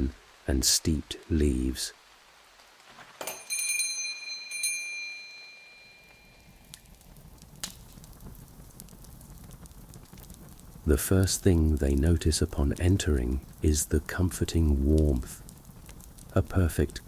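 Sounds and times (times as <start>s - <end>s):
faint low rumble with crackles: 0.0s - 3.2s, 6.0s - 17.0s
shop door bell jingling: 3.2s - 6.4s.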